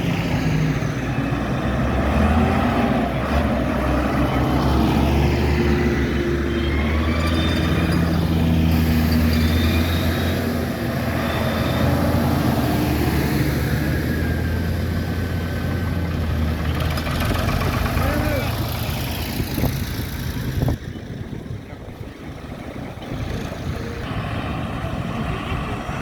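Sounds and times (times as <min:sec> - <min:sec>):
tractor engines droning: 0:00.0 - 0:26.0.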